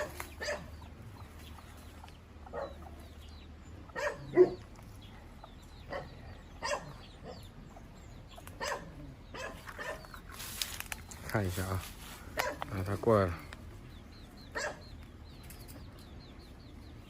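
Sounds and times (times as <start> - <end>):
dog barking: 0.0 - 0.8, 2.5 - 2.9, 3.9 - 4.6, 5.9 - 7.5, 8.6 - 10.2, 12.4 - 12.7, 14.5 - 14.9.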